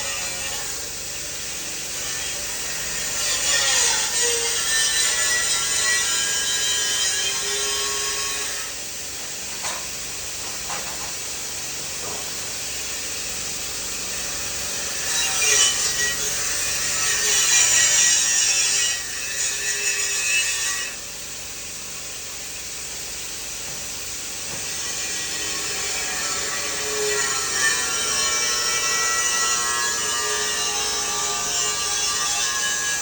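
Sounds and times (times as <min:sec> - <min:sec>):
power grinder on metal: 0:01.5 - 0:08.8, 0:14.2 - 0:21.0, 0:24.6 - 0:33.0.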